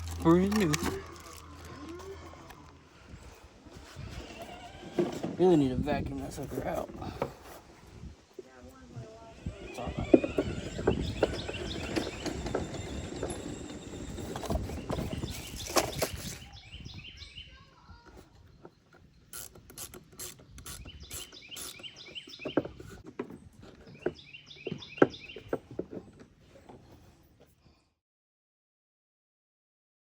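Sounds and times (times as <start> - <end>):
plastic and metal parts clattering: 0.0 - 2.7, 10.4 - 16.5
small birds chirping: 0.0 - 27.0.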